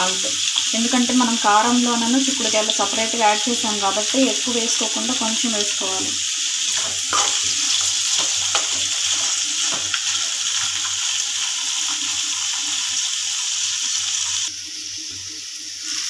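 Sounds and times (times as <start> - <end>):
beans sizzling in hot oil: 0.0 - 16.0
spatula scraping a pan: 6.6 - 10.8.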